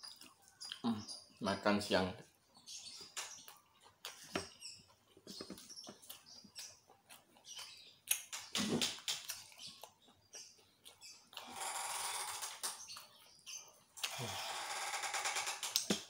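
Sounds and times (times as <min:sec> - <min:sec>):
person chewing food: 0:00.0 - 0:00.9, 0:03.0 - 0:11.4.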